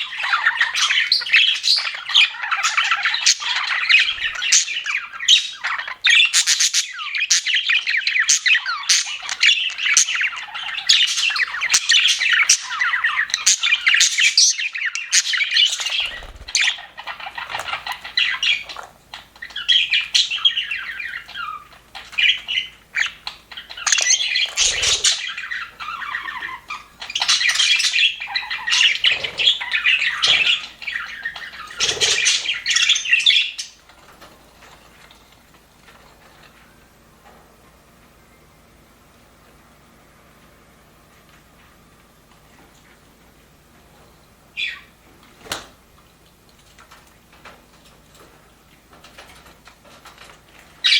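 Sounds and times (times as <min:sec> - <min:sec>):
budgerigars chattering: 0:00.0 - 0:33.8.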